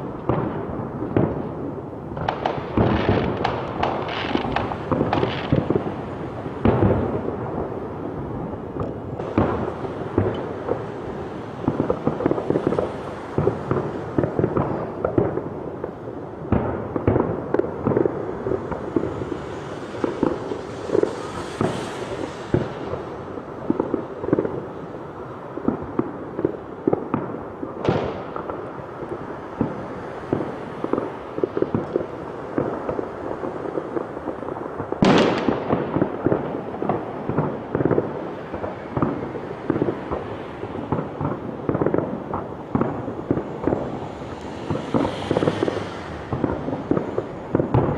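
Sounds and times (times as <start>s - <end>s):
fireworks banging and crackling: 0.0s - 47.9s
rockets whistling: 17.8s - 24.1s, 38.3s - 47.9s
fireworks hissing: 18.1s - 24.2s, 37.0s - 47.9s.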